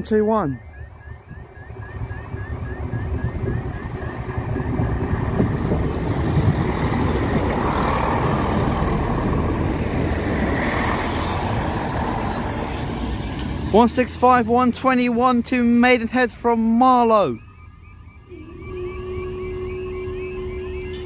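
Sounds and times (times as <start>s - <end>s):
level crossing alarm warbling: 0.0s - 9.4s, 13.8s - 21.0s
train rumble: 1.2s - 16.6s.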